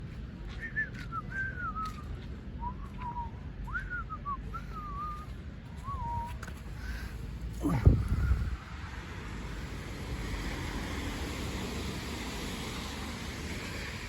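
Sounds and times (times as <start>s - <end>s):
steady low rumble: 0.0s - 14.0s
person whistling a tune: 0.5s - 6.4s.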